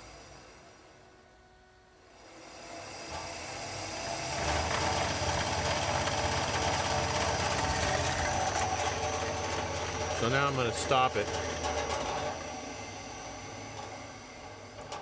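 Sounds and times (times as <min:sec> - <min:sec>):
drill press motor running: 0:02.2 - 0:15.0.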